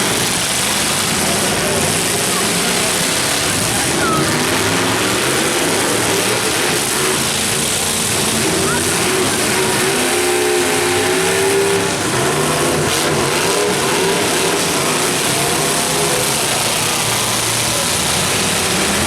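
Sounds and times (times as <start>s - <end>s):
truck engines revving: 0.0s - 19.0s.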